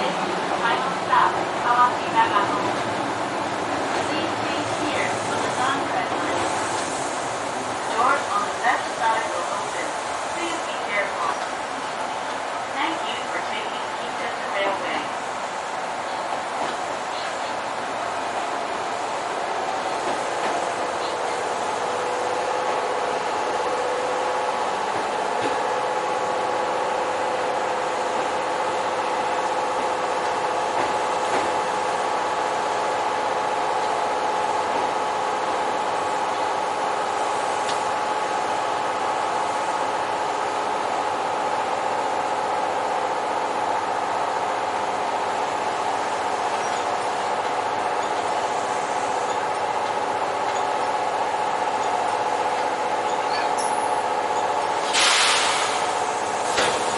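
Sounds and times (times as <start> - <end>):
electric train hum: 0.0 - 56.9.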